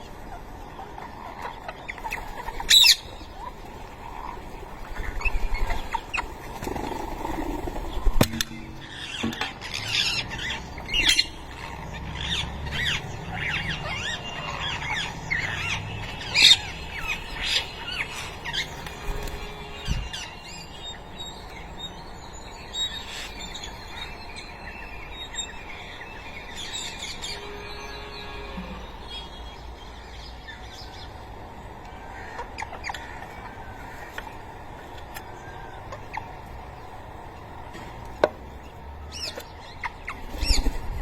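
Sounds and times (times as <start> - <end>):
parakeet chicks squawking: 0.0 - 6.7, 8.8 - 21.6, 32.0 - 34.6, 35.5 - 36.8.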